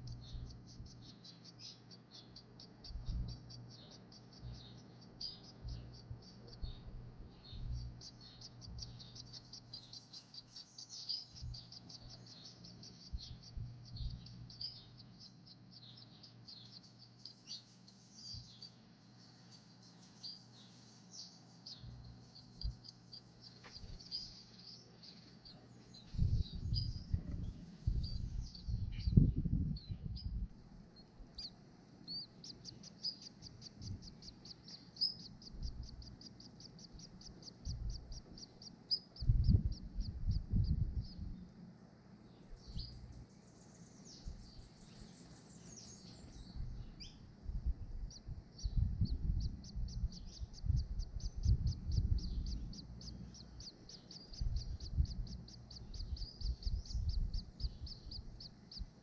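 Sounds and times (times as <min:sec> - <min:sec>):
rapid high bird chirps: 0:00.0 - 0:30.2, 0:30.8 - 0:41.5, 0:42.3 - 0:59.0
low rumble: 0:26.1 - 0:30.6, 0:39.2 - 0:41.4, 0:46.5 - 0:53.5
birds sweeping calls: 0:31.2 - 0:41.4, 0:42.3 - 0:59.0.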